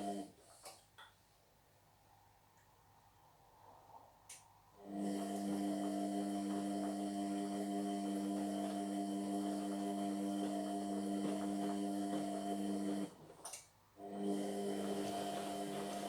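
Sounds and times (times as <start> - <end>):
washing machine motor humming: 0.0 - 0.4, 4.8 - 16.0.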